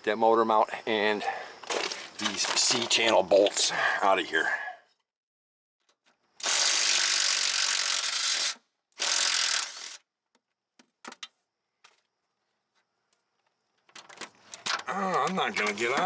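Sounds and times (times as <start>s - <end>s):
battery wrench spinning: 6.4s - 10.0s.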